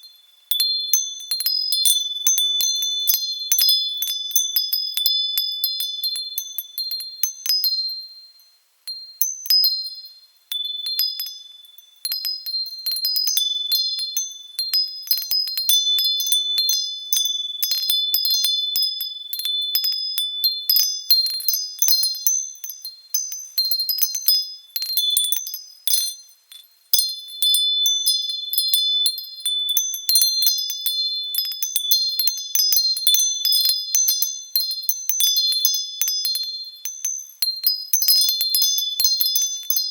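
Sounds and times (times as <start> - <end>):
wind chime ringing: 10.5 - 39.9.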